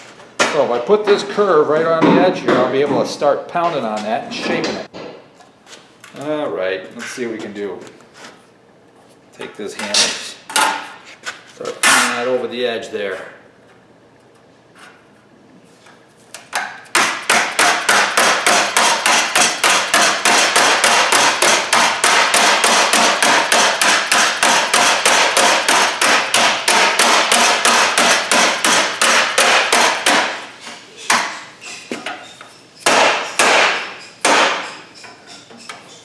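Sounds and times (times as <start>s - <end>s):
hammer pounding sheet steel: 16.9s - 31.8s, 32.8s - 36.0s.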